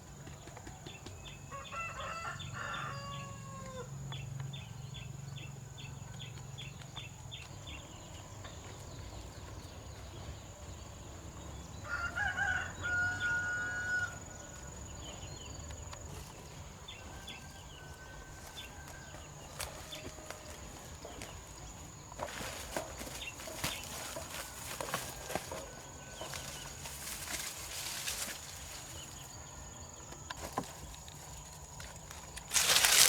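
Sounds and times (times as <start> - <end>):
rooster crowing: 1.5 - 3.9, 11.8 - 14.9, 16.9 - 20.9.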